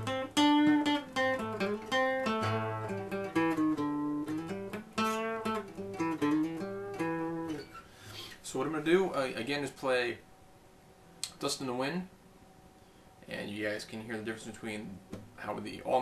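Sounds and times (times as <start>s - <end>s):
acoustic guitar notes plucked: 0.0s - 7.8s.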